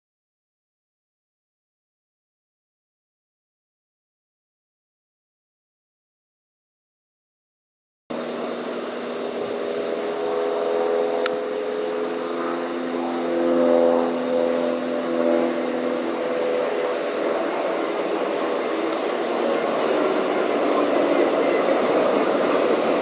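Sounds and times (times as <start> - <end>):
engines running steadily: 8.1 - 23.0.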